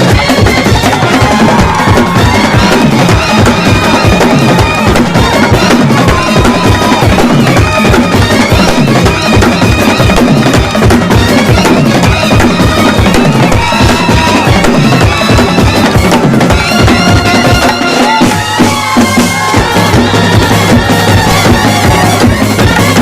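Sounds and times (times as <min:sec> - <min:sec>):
fast dense drumming: 0:00.0 - 0:23.0
wind instruments playing melody: 0:00.0 - 0:23.0.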